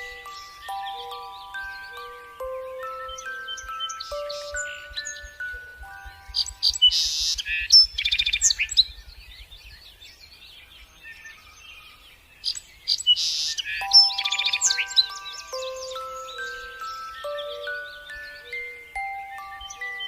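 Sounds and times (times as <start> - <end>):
soft chime-like music notes: 0.0 - 8.9, 13.5 - 20.0
small birds chirping: 0.0 - 20.0.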